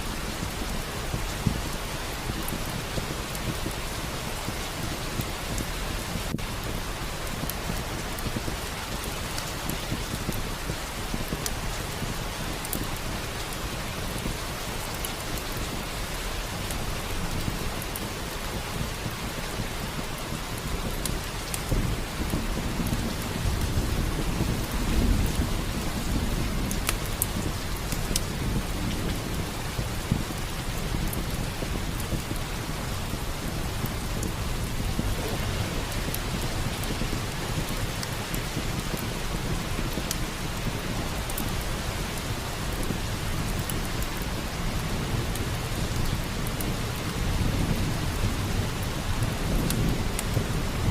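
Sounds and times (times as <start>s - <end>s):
heavy rain: 0.0s - 50.9s
wood fire crackling: 0.0s - 50.9s
low roll of thunder: 20.4s - 50.9s.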